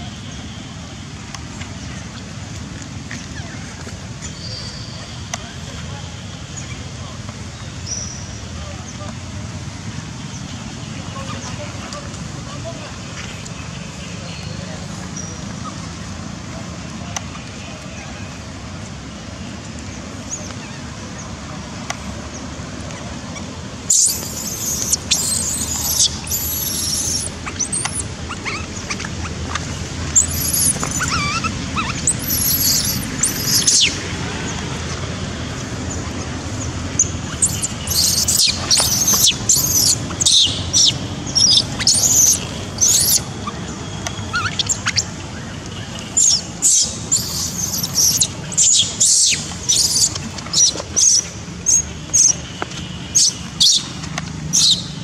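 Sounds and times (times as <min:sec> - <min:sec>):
baby monkey squealing: 0:23.9 - 0:29.4, 0:30.1 - 0:34.0, 0:37.0 - 0:43.6, 0:44.3 - 0:45.1, 0:46.2 - 0:52.3, 0:53.2 - 0:53.8, 0:54.5 - 0:54.9.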